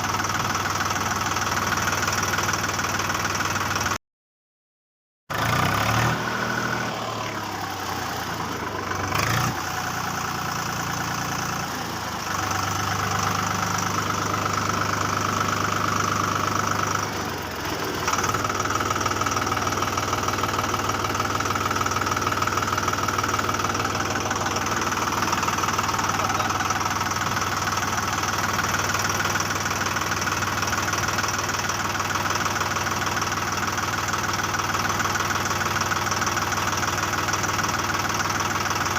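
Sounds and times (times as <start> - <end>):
motor running steadily: 7.0 - 33.0.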